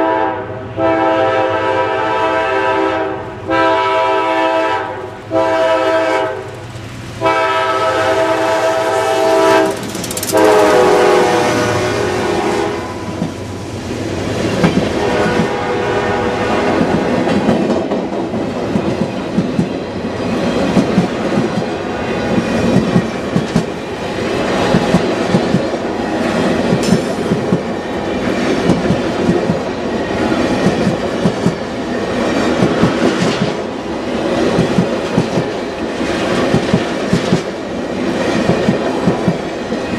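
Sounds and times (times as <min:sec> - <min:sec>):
locomotive horn blasts: 0:00.0 - 0:06.5, 0:07.2 - 0:13.2, 0:14.9 - 0:16.9
train cars rumbling by: 0:00.0 - 0:39.9
wheels clacking over rail joints: 0:09.3 - 0:11.1, 0:14.2 - 0:15.6.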